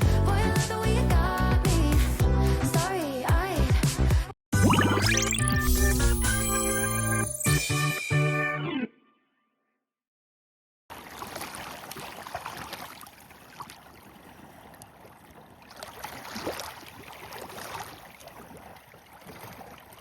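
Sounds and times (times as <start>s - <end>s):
small waves lapping and splashing: 10.9s - 20.0s.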